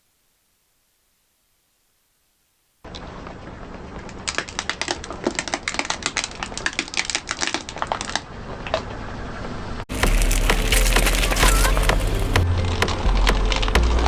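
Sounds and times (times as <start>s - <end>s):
objects crushed under car tyre: 9.9s - 14.0s.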